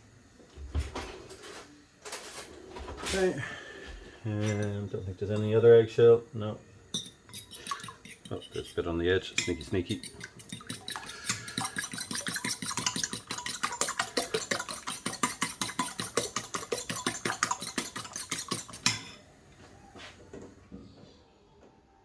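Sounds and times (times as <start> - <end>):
utensil clinking against bowl: 4.4 - 5.6, 6.9 - 19.2.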